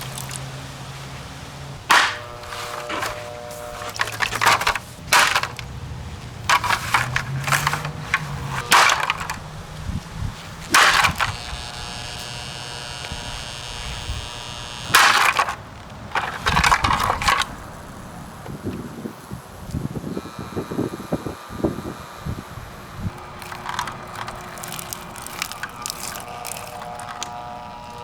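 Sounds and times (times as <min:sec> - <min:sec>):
plastic cracking and breaking: 0:00.0 - 0:00.5, 0:01.8 - 0:11.8, 0:14.9 - 0:17.6, 0:23.2 - 0:27.5.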